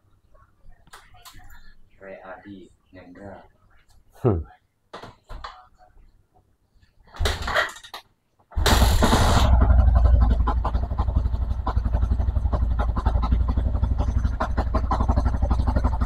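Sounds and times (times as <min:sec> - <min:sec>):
motorcycle engine starting and idling: 0:08.5 - 0:16.0.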